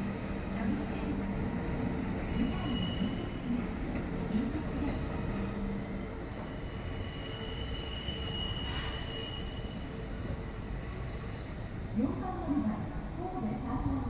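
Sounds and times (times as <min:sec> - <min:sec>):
train rumbling on rails: 0:00.0 - 0:14.0
thin wheel squeal: 0:06.8 - 0:11.8.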